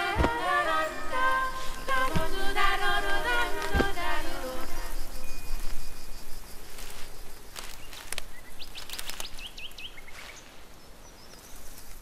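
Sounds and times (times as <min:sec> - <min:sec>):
birds chirping: 0:00.0 - 0:12.0
steady outdoor hiss: 0:00.0 - 0:12.0.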